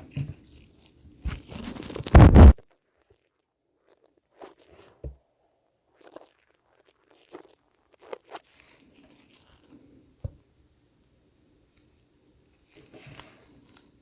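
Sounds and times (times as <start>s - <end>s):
scraping crackling rustle: 1.3s - 2.6s.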